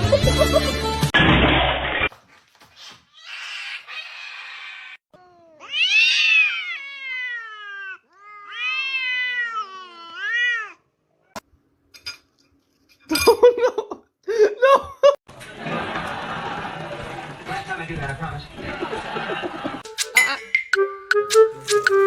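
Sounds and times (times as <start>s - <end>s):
cat yowling meows: 3.2s - 10.8s.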